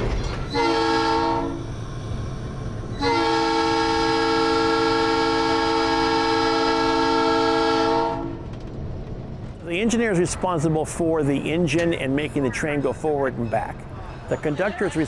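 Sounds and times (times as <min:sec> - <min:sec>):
locomotive air horn: 0:00.5 - 0:01.7, 0:02.9 - 0:08.4.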